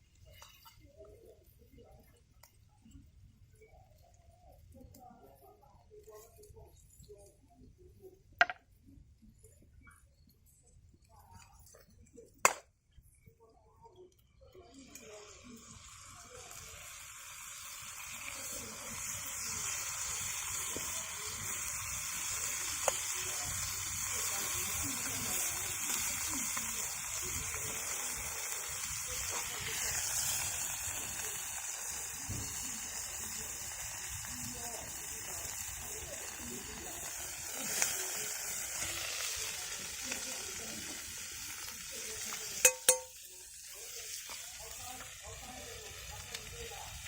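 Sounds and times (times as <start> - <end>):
food sizzling: 0.0 - 7.4, 14.2 - 47.0.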